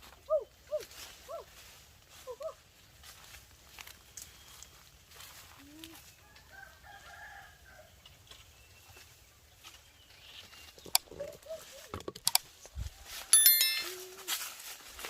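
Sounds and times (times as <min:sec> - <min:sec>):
rooster crowing faintly: 0:06.2 - 0:07.9.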